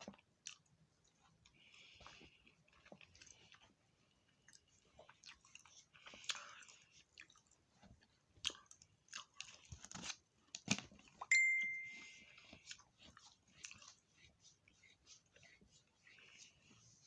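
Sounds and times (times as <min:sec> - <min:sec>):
chewing with crunches: 0:00.0 - 0:11.3, 0:12.0 - 0:17.0
bright ding: 0:11.3 - 0:12.2.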